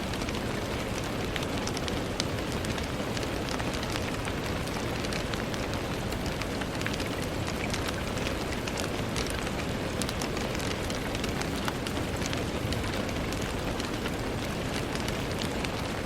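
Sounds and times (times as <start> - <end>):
rain tapping on window: 0.0 - 16.0.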